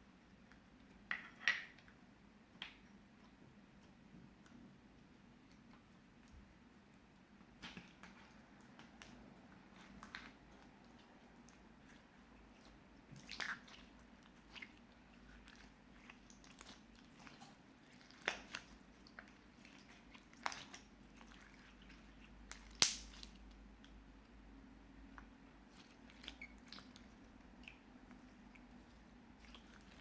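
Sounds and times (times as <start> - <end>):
slime squished by hand: 7.5 - 23.7
sticky pops and crackles: 22.5 - 23.4.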